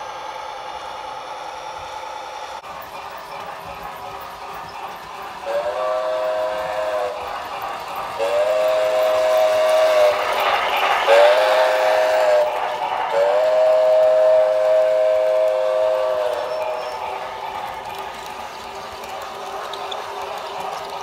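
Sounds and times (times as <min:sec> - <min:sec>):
train running noise: 0:00.0 - 0:21.0
model train horn blasts: 0:05.5 - 0:07.2, 0:08.2 - 0:10.2, 0:11.1 - 0:16.9.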